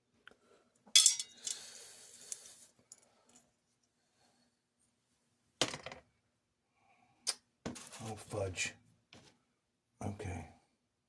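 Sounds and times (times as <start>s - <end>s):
sharp metallic clink: 1.0s - 1.6s.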